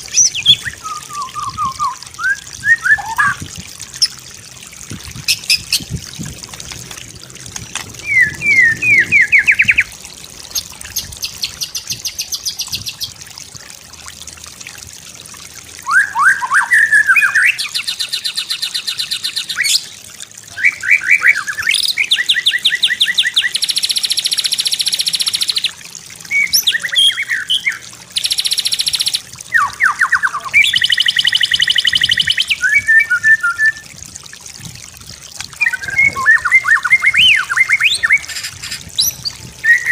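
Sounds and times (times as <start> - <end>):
bird singing varied song: 0.0 - 3.4, 8.0 - 9.9, 20.5 - 33.8, 35.6 - 39.9
water trickling: 0.0 - 39.9.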